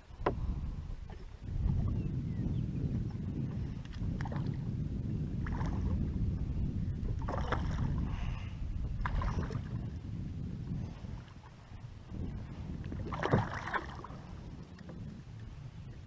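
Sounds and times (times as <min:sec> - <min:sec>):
low rumble: 0:00.0 - 0:16.0
water splashing and churning: 0:02.9 - 0:15.7.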